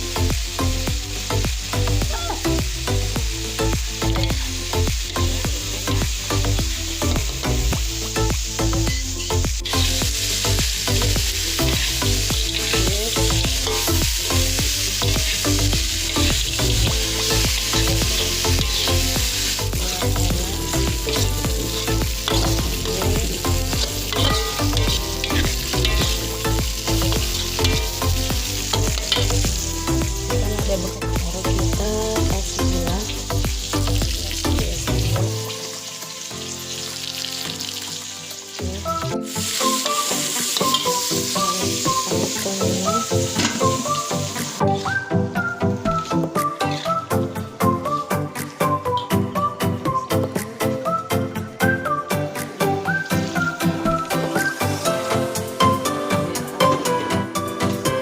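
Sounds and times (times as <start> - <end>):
background music: 0.0 - 58.0
food sizzling in hot oil: 0.0 - 58.0
stirring: 20.4 - 30.2.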